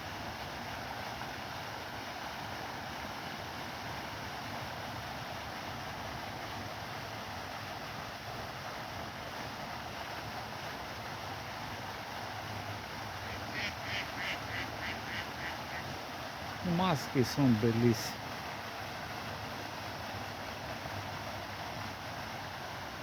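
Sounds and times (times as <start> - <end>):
running water rushing: 0.0 - 23.0.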